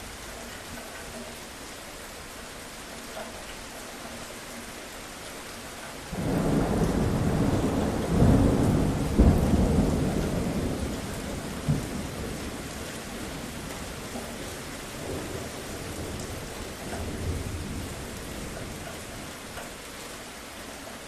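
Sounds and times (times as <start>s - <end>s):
steady rain: 0.0s - 21.0s
thunder rumbling and cracking: 6.1s - 19.6s.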